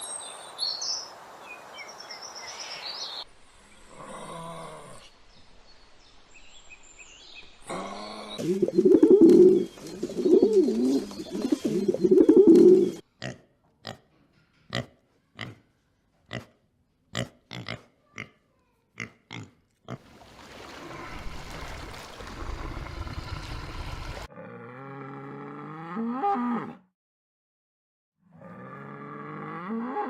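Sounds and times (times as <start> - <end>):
low animal cooing: 7.7 - 13.0
drawn-out rising animal call: 8.4 - 13.0.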